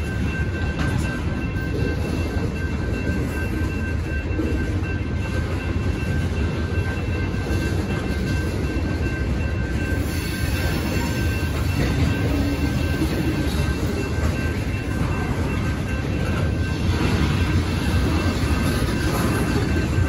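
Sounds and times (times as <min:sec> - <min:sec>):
crossing signal bell ringing: 0:00.0 - 0:20.0
freight train rumbling past: 0:00.0 - 0:20.0.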